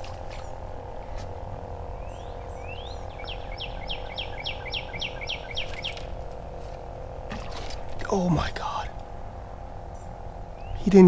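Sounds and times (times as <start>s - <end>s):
steady hum: 0.0s - 11.0s
bird singing whistles: 2.0s - 6.0s.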